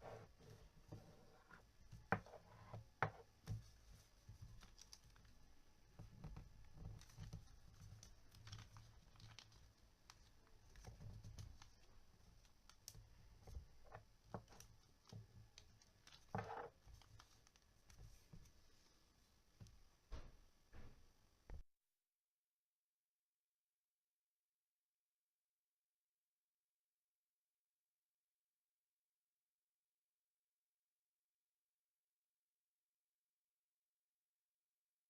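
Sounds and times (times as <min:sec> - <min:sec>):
low room hum: 0:00.0 - 0:21.6.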